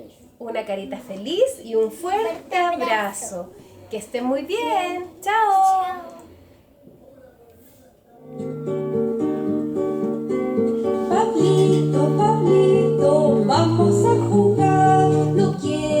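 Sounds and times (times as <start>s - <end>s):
acoustic guitar music: 8.2s - 16.0s.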